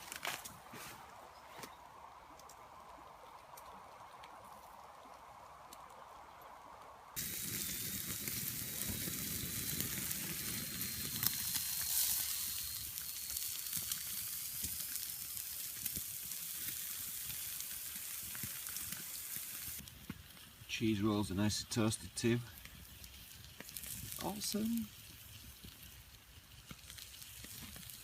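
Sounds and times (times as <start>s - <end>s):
bacon sizzling on a grill: 7.2s - 28.0s.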